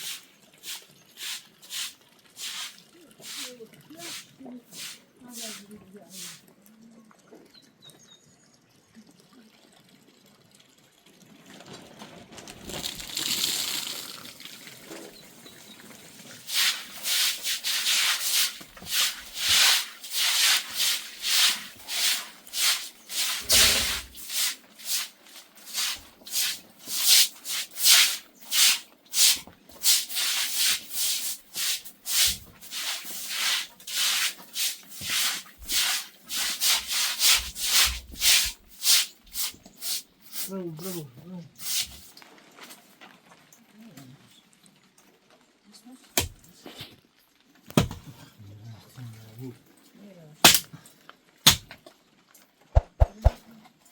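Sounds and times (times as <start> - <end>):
hiss: 16.5 - 40.1.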